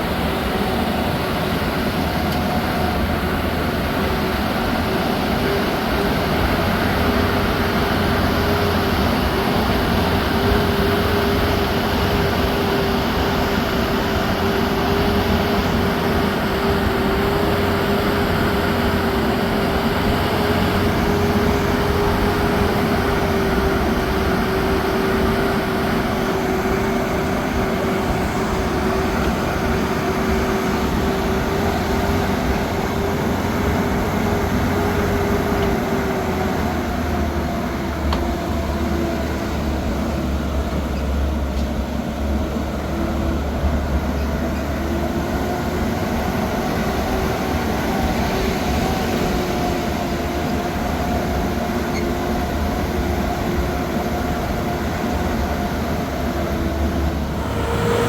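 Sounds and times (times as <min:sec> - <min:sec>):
vehicle engine rumbling drone: 0:00.0 - 0:58.0.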